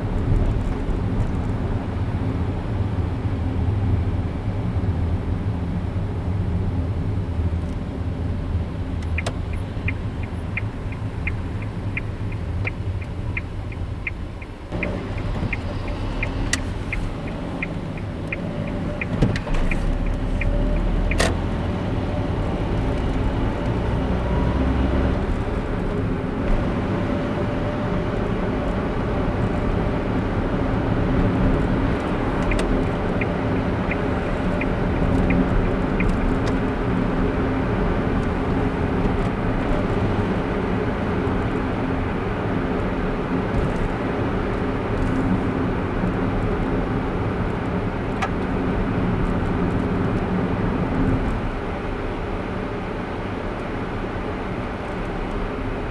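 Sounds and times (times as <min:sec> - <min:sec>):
car road and engine hum: 0:00.0 - 0:55.9
turn signal ticking: 0:08.4 - 0:40.5.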